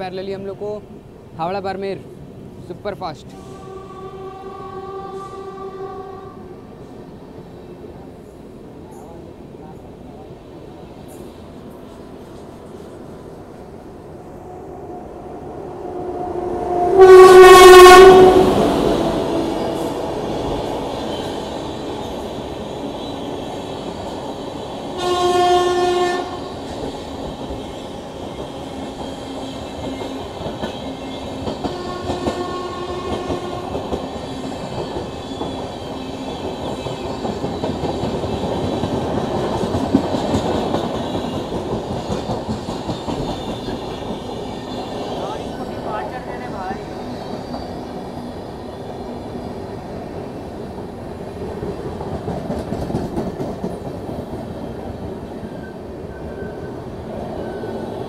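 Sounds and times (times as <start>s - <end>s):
express train passing: 0.0s - 58.0s
train horn blasts: 3.3s - 6.6s, 15.8s - 19.7s, 25.0s - 26.4s, 31.7s - 33.8s.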